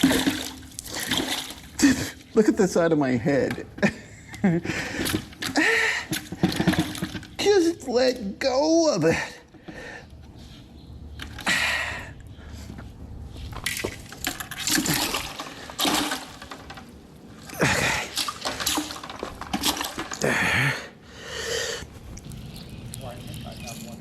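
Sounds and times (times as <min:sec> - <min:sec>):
water splashing and sloshing: 0:00.0 - 0:02.3, 0:13.4 - 0:20.4, 0:21.8 - 0:24.0.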